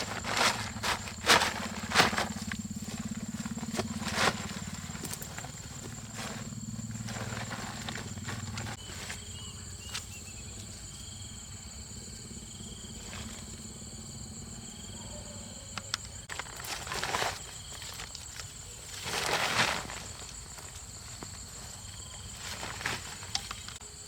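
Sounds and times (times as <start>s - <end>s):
rustling bursts: 0.0s - 9.3s
insect drone: 0.0s - 24.0s.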